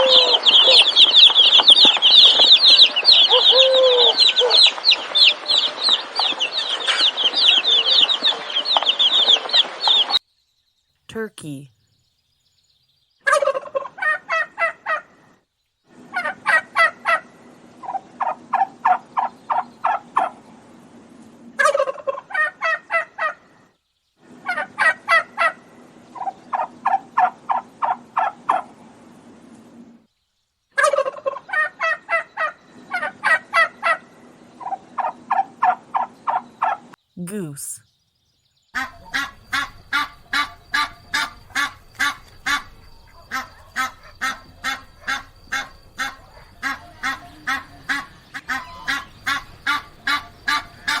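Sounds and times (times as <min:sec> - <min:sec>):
turkeys gobbling: 0:00.0 - 0:08.5, 0:13.3 - 0:15.1, 0:16.2 - 0:20.4, 0:21.6 - 0:23.4, 0:24.5 - 0:28.8, 0:30.8 - 0:36.9, 0:38.8 - 0:51.0.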